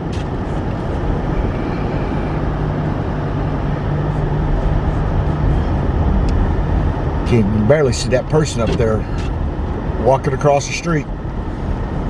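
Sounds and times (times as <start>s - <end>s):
low hum: 0.0s - 10.0s
engine and road noise drone: 0.0s - 12.0s.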